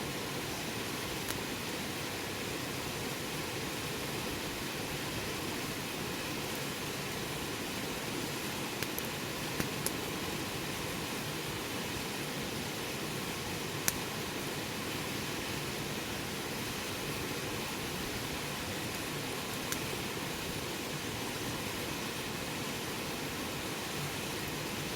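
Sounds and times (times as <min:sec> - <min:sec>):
campfire hissing: 0:00.0 - 0:24.9.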